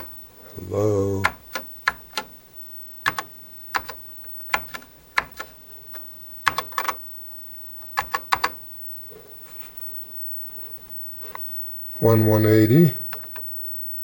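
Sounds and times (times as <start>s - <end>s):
computer keyboard typing clicks: 1.2s - 2.3s, 3.0s - 7.0s, 8.0s - 8.6s.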